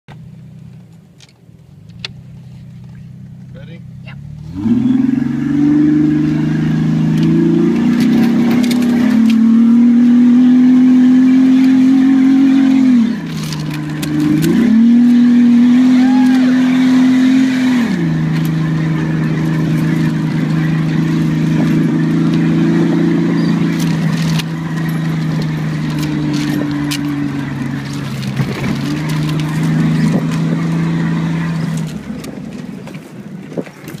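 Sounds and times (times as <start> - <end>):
vehicle engine drone from inside: 0.1 - 34.0.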